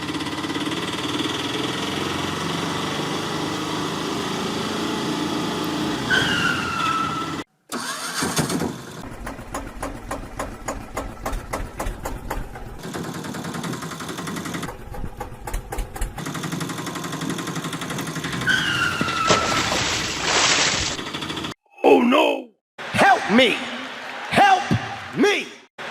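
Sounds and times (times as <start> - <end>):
vehicle engine running: 0.0 - 6.1, 8.9 - 19.1.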